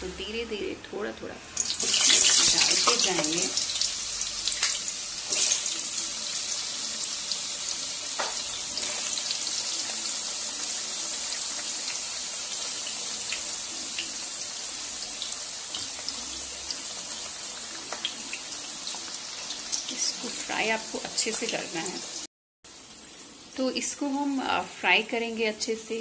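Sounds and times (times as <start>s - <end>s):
food sizzling in hot oil: 1.5s - 26.0s
oil crackling and popping: 1.6s - 21.5s.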